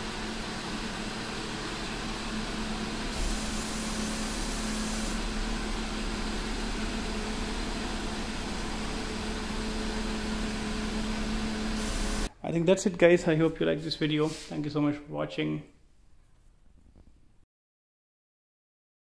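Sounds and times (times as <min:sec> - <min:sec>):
car engine running at low speed: 0:00.0 - 0:12.3.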